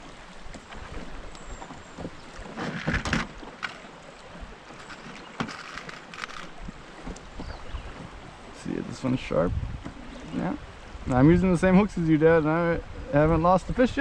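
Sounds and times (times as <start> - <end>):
hiss of water and wind: 0.0 - 14.0
light knocks and rustling: 4.7 - 8.2.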